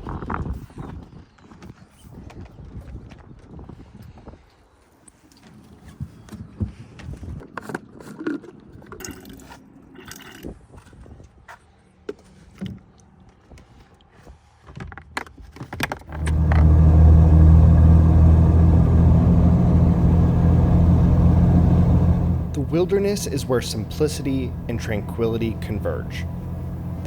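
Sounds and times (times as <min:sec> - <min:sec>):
car engine running: 0:16.1 - 0:27.0.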